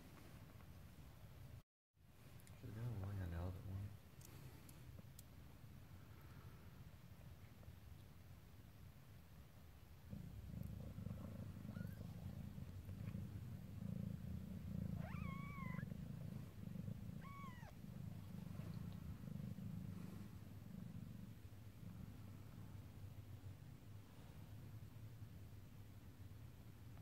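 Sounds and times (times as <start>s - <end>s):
cat purring: 2.5s - 27.0s
cat mewing: 14.8s - 15.9s, 17.2s - 17.8s.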